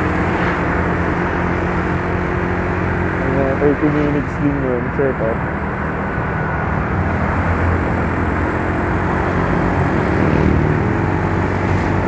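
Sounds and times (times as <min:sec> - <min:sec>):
wind and road noise: 0:00.0 - 0:12.0
scooter engine running: 0:07.7 - 0:12.0.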